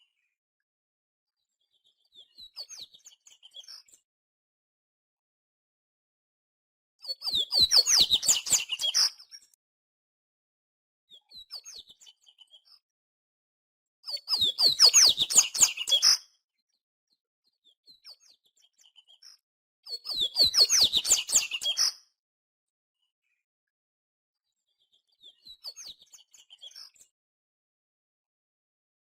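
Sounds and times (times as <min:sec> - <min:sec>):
faint bird chirps: 0:00.0 - 0:00.4, 0:01.3 - 0:04.1, 0:07.0 - 0:09.6, 0:11.1 - 0:12.9, 0:14.0 - 0:22.2, 0:24.4 - 0:27.2.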